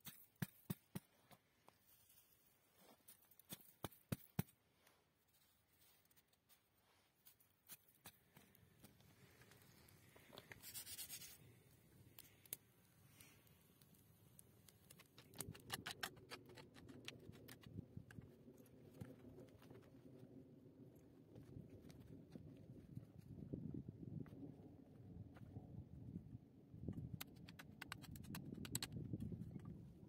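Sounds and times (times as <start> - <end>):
small clicks and knocks: 26.9 - 29.8.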